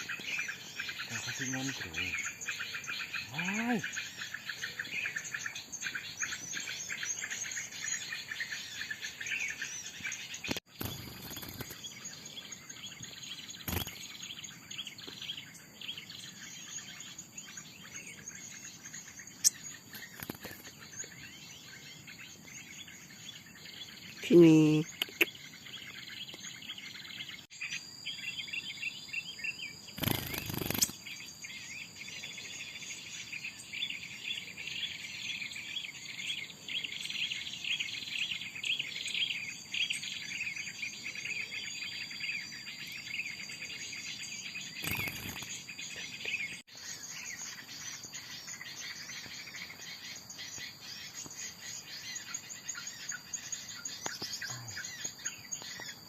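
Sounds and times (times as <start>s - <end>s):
small birds chirping: 0.0s - 56.0s
high insect drone: 10.7s - 22.2s, 27.6s - 43.2s, 44.0s - 56.0s.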